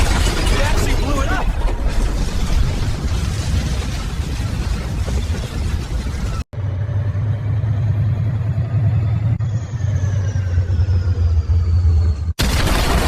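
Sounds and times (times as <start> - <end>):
vehicle engine rumble: 0.0 - 12.4
high whine falling in pitch: 7.0 - 12.3.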